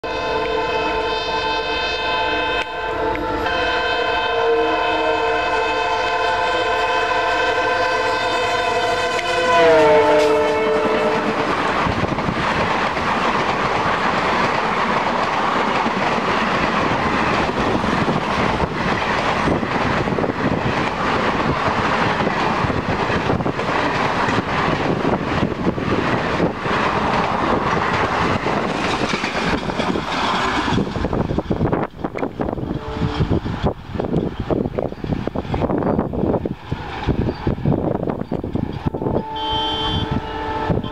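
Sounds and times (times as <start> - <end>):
locomotive horn blast: 0.0 - 11.8, 32.8 - 33.4, 38.9 - 40.9
train coaches rushing past: 0.0 - 40.9
train wheels clattering: 8.9 - 38.9.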